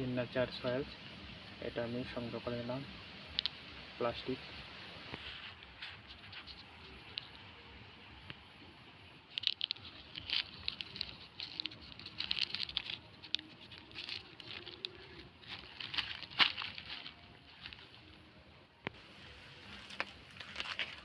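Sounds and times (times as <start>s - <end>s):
plastic sheeting crinkling: 9.3s - 18.2s, 18.9s - 21.0s.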